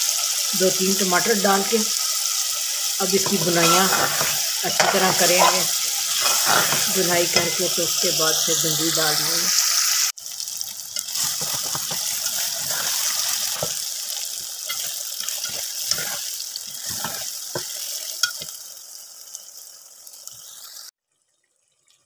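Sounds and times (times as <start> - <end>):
masala sizzling in a pot: 0.0 - 21.0
spoon stirring and scraping: 3.1 - 8.1, 11.0 - 18.5.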